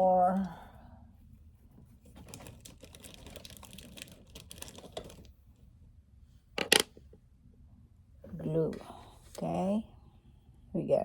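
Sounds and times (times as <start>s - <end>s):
plastic pieces clicking and crinkling: 2.2s - 5.3s, 6.6s - 6.9s
sharp plastic clacks: 6.6s - 7.0s.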